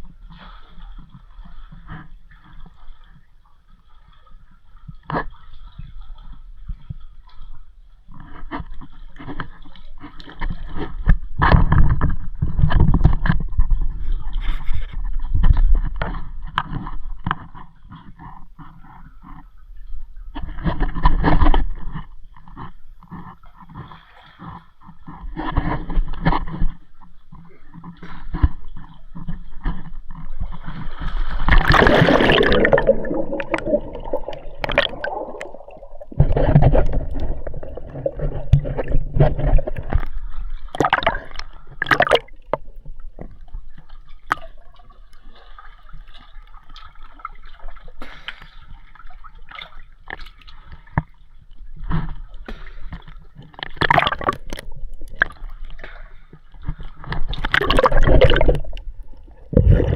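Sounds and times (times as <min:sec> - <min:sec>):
water sloshing and gurgling: 0:00.0 - 0:59.9
water splashes: 0:28.2 - 0:59.9.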